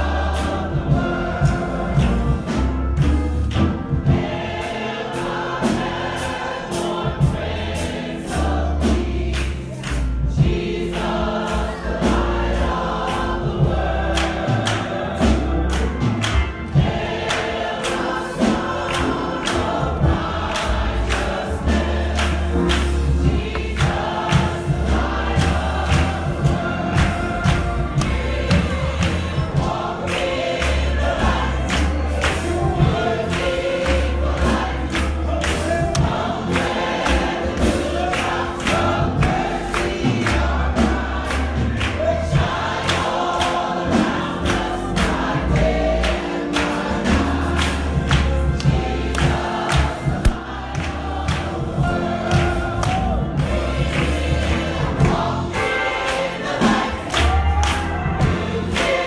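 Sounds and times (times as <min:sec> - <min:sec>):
bass notes: 0:00.0 - 0:04.7, 0:18.4 - 0:42.9, 0:43.9 - 0:55.7
congregation singing gospel song: 0:00.0 - 0:59.0
sharp percussive beat: 0:00.0 - 0:59.0.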